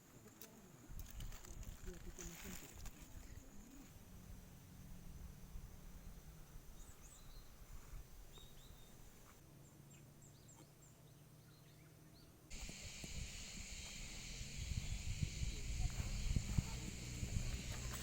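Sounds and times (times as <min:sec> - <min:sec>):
small birds chirping: 0:04.8 - 0:18.0
high insect drone: 0:12.5 - 0:18.0.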